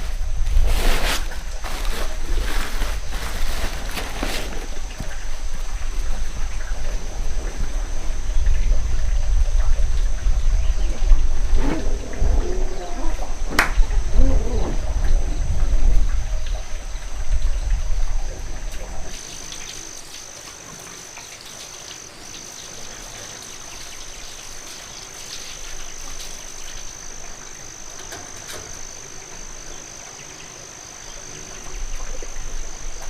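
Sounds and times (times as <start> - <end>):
low rumble: 0.0 - 19.2
insects chirring: 0.0 - 33.0.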